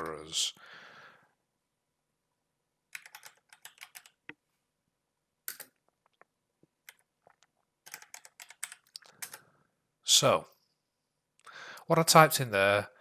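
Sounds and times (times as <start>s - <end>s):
computer keyboard typing: 2.9s - 4.4s, 5.5s - 9.4s.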